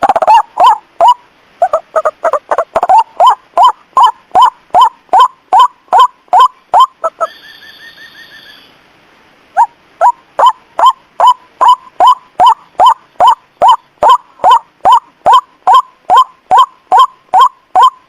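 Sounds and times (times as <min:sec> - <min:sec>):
rapid bird trill: 0:00.0 - 0:08.8, 0:09.6 - 0:18.0
bird lure call sharp notes: 0:02.8 - 0:08.7.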